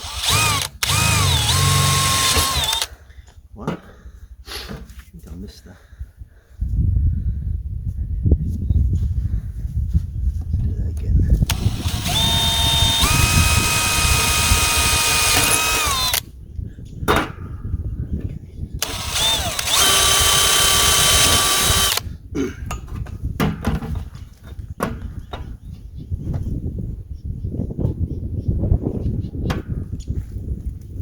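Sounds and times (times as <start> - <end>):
power drill drilling: 0.0 - 2.9, 11.5 - 16.2, 18.8 - 22.0.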